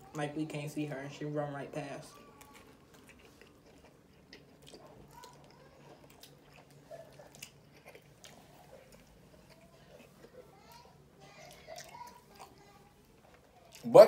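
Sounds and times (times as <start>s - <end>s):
chewing crunchy food: 2.0s - 14.0s.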